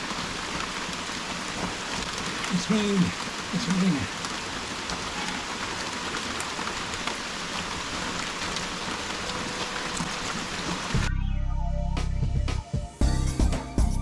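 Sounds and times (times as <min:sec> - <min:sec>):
heavy rain pouring: 0:00.0 - 0:11.1
background music: 0:11.0 - 0:14.0.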